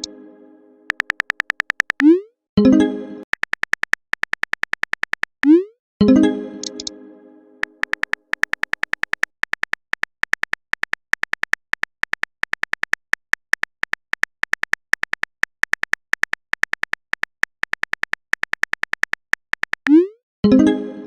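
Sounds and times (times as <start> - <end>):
keyboard typing clicks: 0.9 - 2.2, 3.3 - 5.7, 6.6 - 6.9, 7.6 - 20.1.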